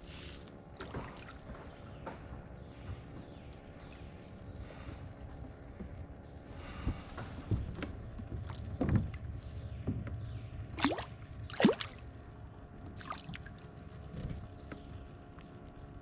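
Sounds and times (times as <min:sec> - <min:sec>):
water splashing: 0:10.7 - 0:12.1, 0:13.0 - 0:13.6.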